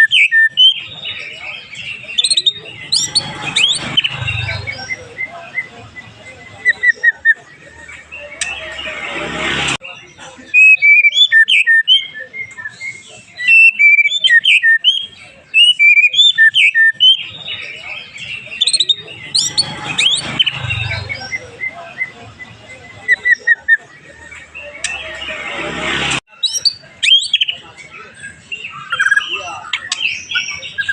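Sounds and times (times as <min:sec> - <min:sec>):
bird singing whistled phrases: 0:00.0 - 0:00.8, 0:10.6 - 0:22.1, 0:26.3 - 0:27.6.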